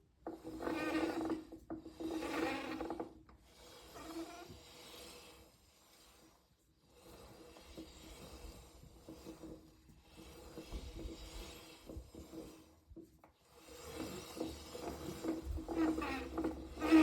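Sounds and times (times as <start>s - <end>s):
motorcycle sprocket rasping: 7.0s - 17.0s.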